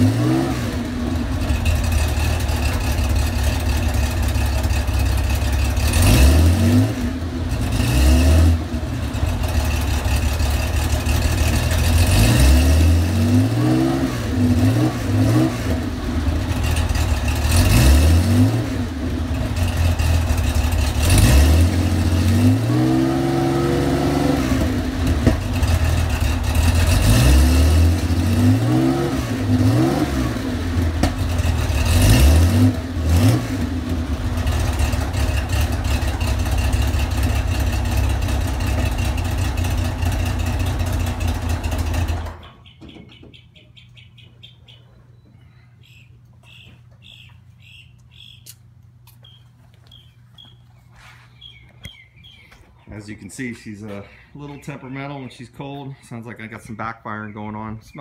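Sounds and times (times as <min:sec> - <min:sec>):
car engine revving: 0:00.0 - 0:42.5
engine backfire pops: 0:24.6 - 0:25.8, 0:30.9 - 0:32.1.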